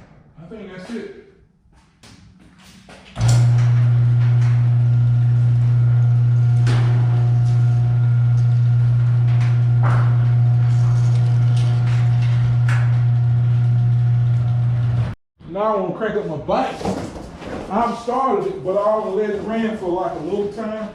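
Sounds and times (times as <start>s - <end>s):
garage door motor humming: 3.2s - 15.2s
garage door knocks: 8.1s - 13.1s.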